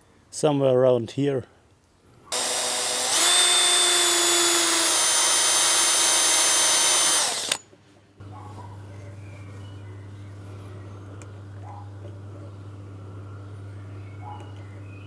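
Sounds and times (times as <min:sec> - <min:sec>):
electric drill whining: 0:02.3 - 0:07.6.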